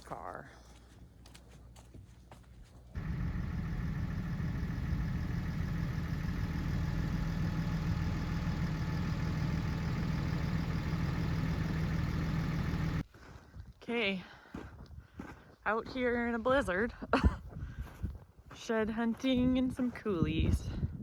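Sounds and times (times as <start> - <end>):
car engine humming: 3.0 - 13.0.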